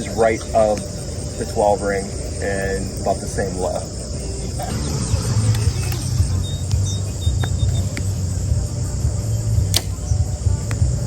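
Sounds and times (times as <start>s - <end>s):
crickets chirring: 0.0s - 11.0s
steady low rumble: 4.5s - 9.7s
faint high beeps: 4.6s - 8.0s.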